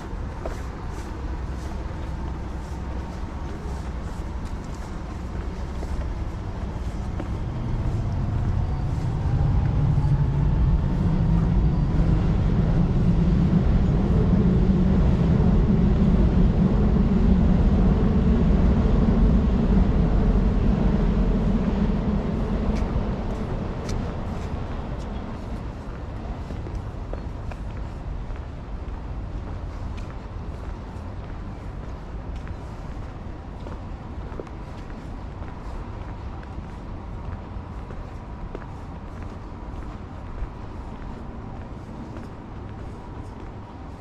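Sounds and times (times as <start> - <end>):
passing vehicle rumble: 0.0 - 27.1.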